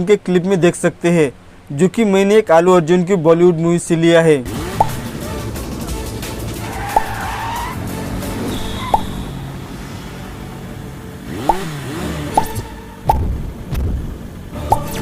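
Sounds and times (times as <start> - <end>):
action film music: 4.5 - 10.3, 10.9 - 15.0
cars and tyre squeal: 6.5 - 10.7.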